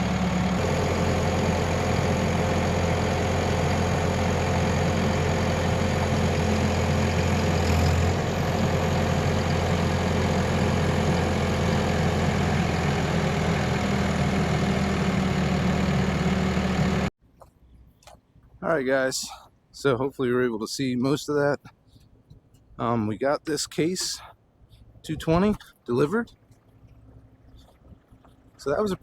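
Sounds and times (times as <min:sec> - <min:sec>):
heavy diesel engine running: 0:00.0 - 0:17.1.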